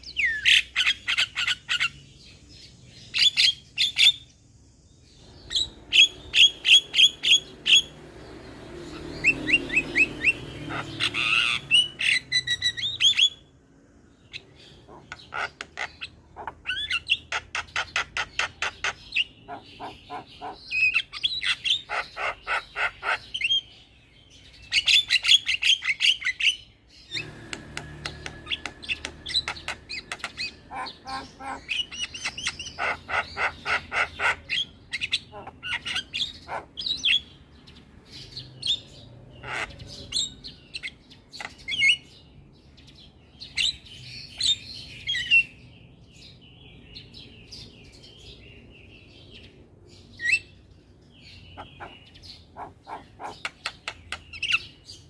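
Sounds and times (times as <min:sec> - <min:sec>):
mynas squawking and chirping: 0:08.9 - 0:13.4, 0:14.3 - 0:23.7, 0:24.7 - 0:37.3, 0:38.2 - 0:42.0, 0:51.4 - 0:54.8.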